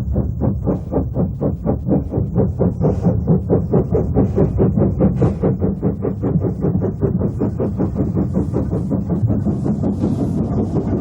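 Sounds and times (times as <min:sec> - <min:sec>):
low rumble: 0:00.0 - 0:11.0
steam locomotive chuffing: 0:00.0 - 0:11.0
steam hiss: 0:07.4 - 0:11.0.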